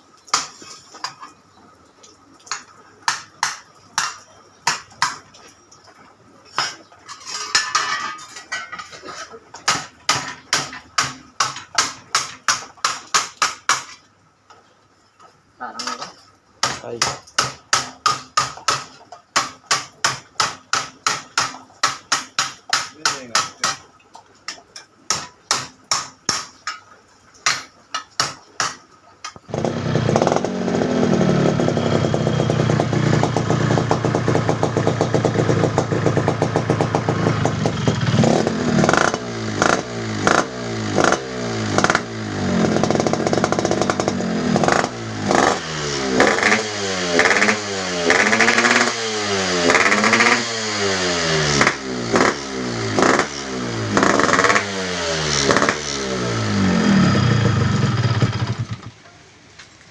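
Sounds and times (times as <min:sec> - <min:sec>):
hammer strikes: 0:16.6 - 0:23.9
motorcycle engine revving: 0:29.5 - 0:58.9.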